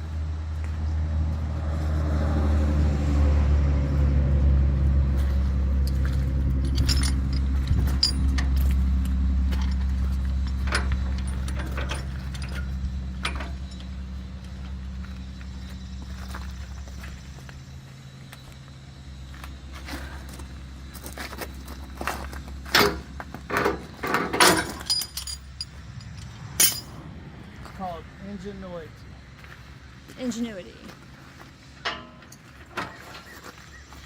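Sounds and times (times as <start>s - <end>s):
engine idling hum: 0.0s - 34.0s
steel chains clinking and rattling: 5.2s - 14.3s, 21.0s - 27.0s, 31.8s - 32.7s.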